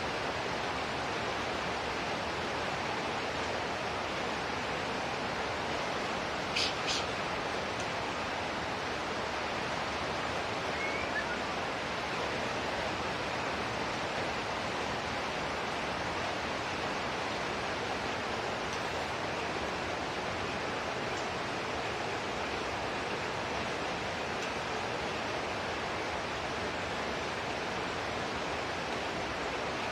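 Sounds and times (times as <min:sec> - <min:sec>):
hiss of falling shower water: 0:06.4 - 0:07.3.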